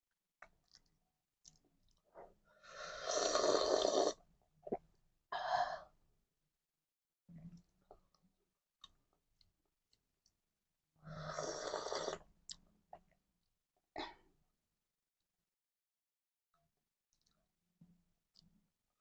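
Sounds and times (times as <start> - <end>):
mouth smacks and clicks eating: 0.4 - 2.0.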